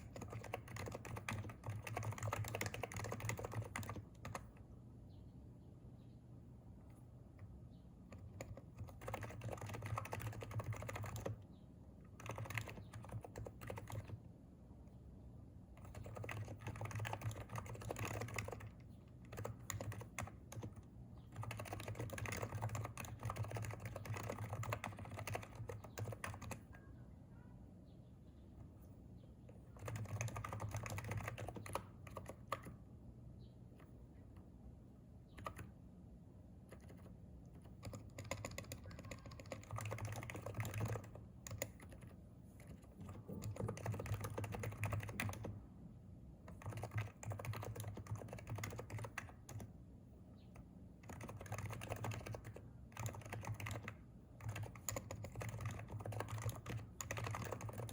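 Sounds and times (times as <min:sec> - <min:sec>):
keyboard typing: 0:00.0 - 0:04.7, 0:06.9 - 0:11.4, 0:12.0 - 0:14.3, 0:15.7 - 0:26.8, 0:29.5 - 0:32.8, 0:35.3 - 0:35.8, 0:36.6 - 0:45.6, 0:46.4 - 0:49.8, 0:50.5 - 0:57.9.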